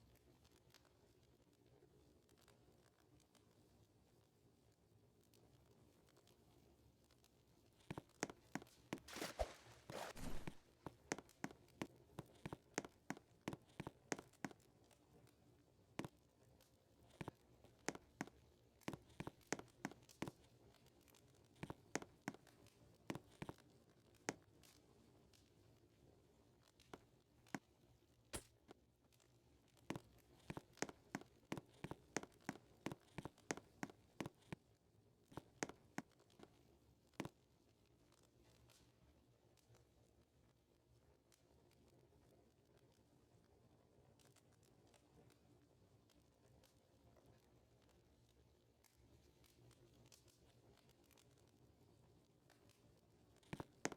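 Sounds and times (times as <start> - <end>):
footsteps crackling on forest floor: 9.1 - 10.6.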